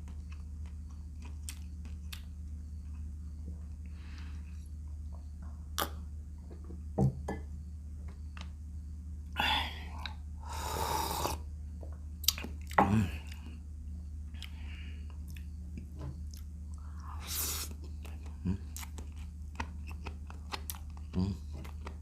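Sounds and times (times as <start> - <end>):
wet chewing and crunching: 0.0 - 3.9, 12.2 - 13.6, 14.3 - 22.0
mouth clicks: 5.8 - 6.0.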